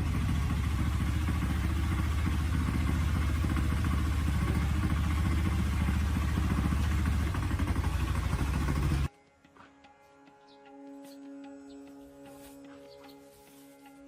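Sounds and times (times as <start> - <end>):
engine running steadily: 0.0 - 9.1.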